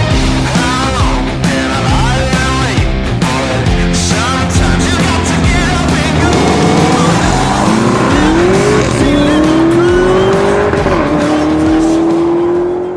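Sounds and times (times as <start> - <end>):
music: 0.0 - 12.9
car engine accelerating hard: 4.0 - 12.9.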